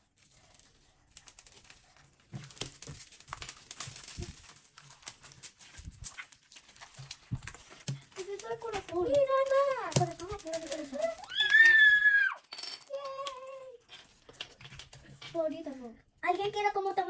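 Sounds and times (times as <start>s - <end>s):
slime crackling and clicking: 7.9s - 11.6s.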